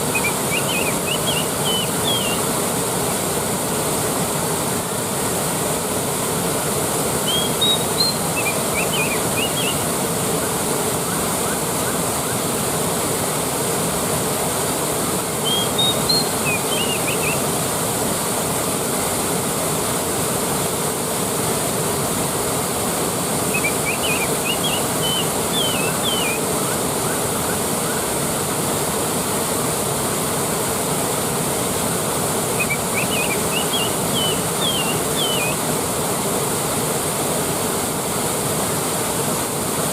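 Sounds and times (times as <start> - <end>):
bird chirping: 0.0 - 2.4, 7.2 - 9.8, 15.4 - 17.4, 23.5 - 26.4, 32.6 - 35.6
waterfall rushing: 0.0 - 39.9.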